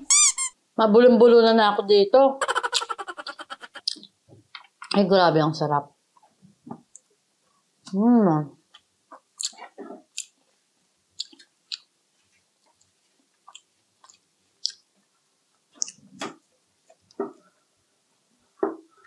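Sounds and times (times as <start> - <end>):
person chewing wetly: 9.2 - 10.4, 11.2 - 11.9, 12.6 - 14.9.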